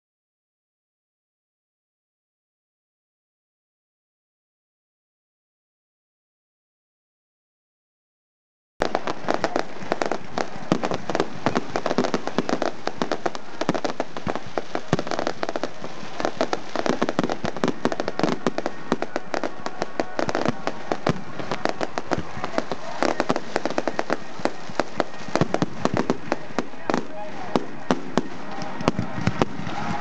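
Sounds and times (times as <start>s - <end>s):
fireworks bangs and crackles: 8.8s - 30.0s.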